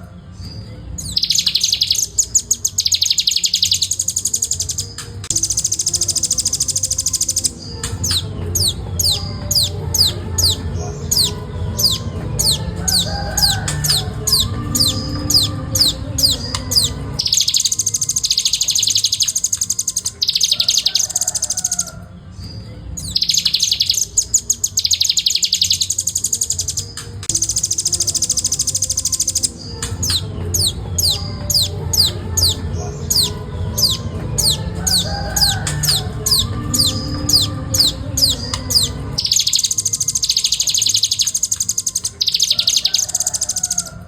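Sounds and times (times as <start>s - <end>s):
bird rattling trill song: 1.0s - 22.0s, 23.0s - 44.0s.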